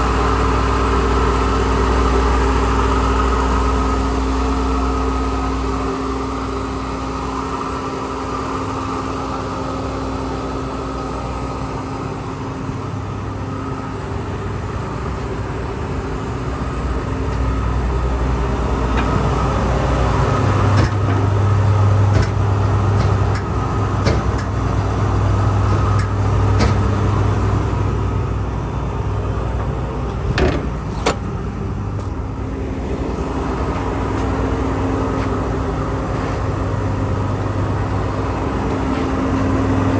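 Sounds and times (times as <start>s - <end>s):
diesel engine running: 0.0s - 39.9s
sharp clicks and knocks: 20.7s - 21.4s, 22.1s - 24.8s, 25.6s - 27.1s, 29.6s - 31.3s.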